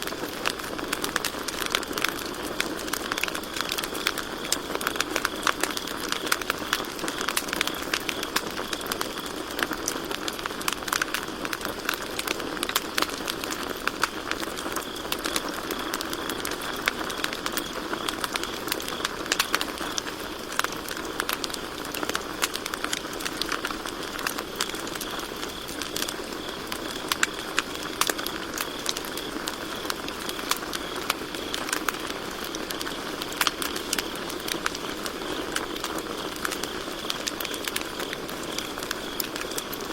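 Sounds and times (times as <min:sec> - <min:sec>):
campfire crackling and popping: 0:00.0 - 0:39.9
crickets chirring: 0:12.9 - 0:39.9.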